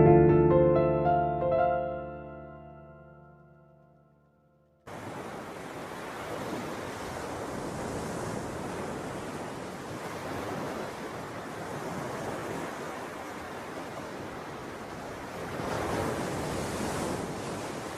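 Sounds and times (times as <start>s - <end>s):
ocean waves breaking: 4.9s - 17.9s.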